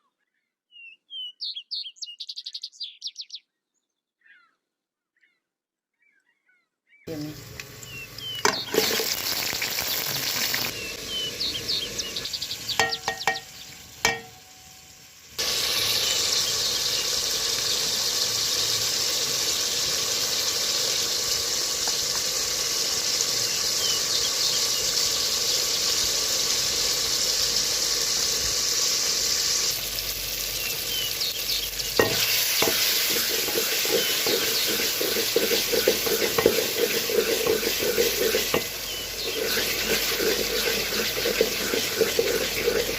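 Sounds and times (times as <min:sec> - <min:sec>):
food sizzling in oil: 0:07.1 - 0:42.9
utensil scraping pan: 0:08.4 - 0:09.3, 0:32.0 - 0:42.9.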